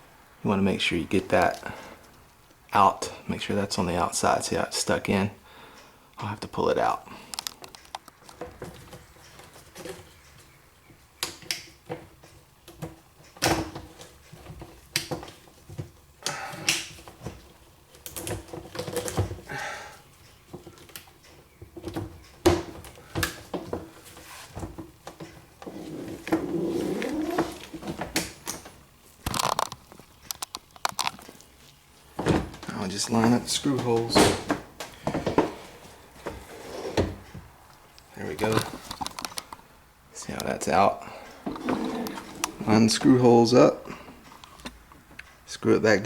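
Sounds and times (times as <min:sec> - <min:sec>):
dishwasher door panel parts rattling: 0:33.2 - 0:35.5.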